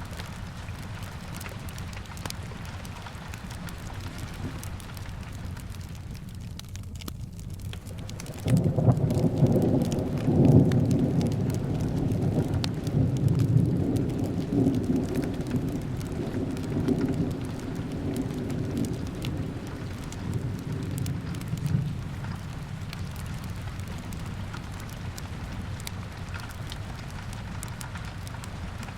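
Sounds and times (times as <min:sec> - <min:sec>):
small crackles: 0:00.0 - 0:28.9
steady rain: 0:00.0 - 0:28.9
rolling thunder: 0:08.1 - 0:26.4.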